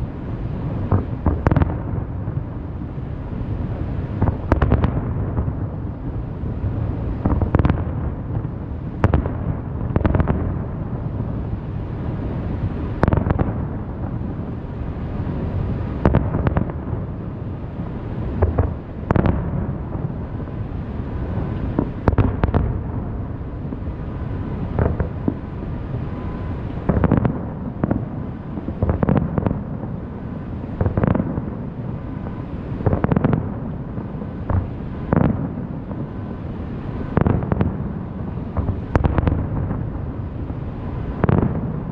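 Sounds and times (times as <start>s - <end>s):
low rumble of explosions: 0.0s - 41.9s
firework shells booming: 21.3s - 23.1s, 24.5s - 30.0s, 30.8s - 36.2s, 37.0s - 41.9s.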